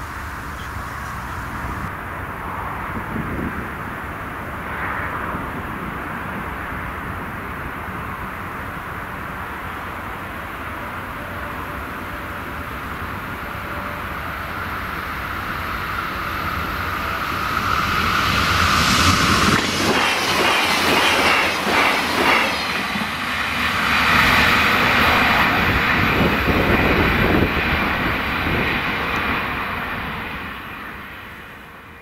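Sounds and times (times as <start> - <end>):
train rumbling past: 0.0 - 32.0.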